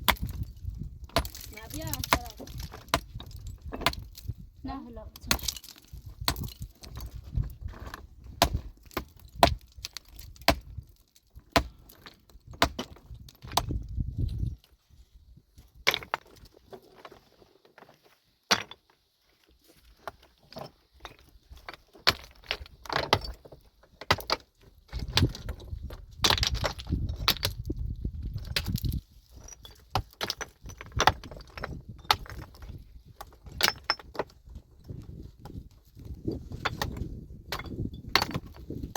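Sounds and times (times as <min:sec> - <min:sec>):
metal tools knocking on rock: 0:33.4 - 0:34.3, 0:36.5 - 0:38.7.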